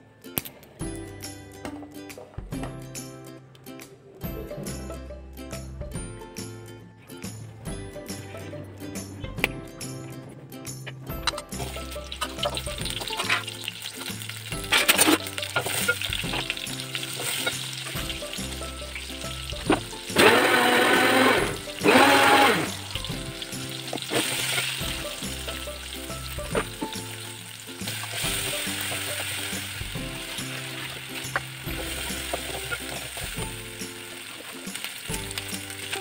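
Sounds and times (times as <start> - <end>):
background music: 0.0 - 36.0
shallots sizzling in a pot: 11.5 - 36.0.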